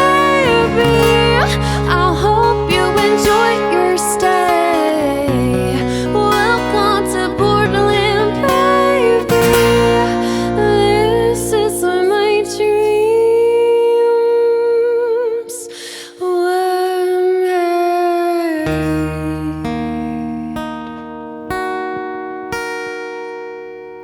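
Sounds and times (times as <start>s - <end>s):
sustained guitar chords: 0.0s - 17.2s
voice singing with vibrato: 0.0s - 19.4s.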